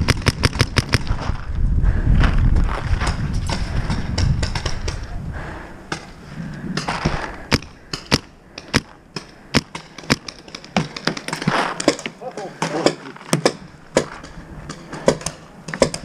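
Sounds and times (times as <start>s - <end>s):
paintball markers firing: 0.0s - 1.1s, 7.1s - 16.0s
rustling movement: 8.9s - 15.5s.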